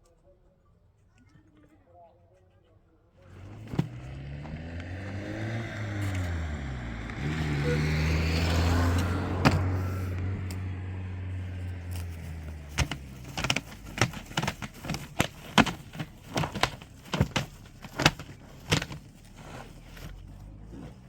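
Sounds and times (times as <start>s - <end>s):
low motor hum: 3.2s - 21.0s
sharp knocks and clicks: 11.9s - 19.2s.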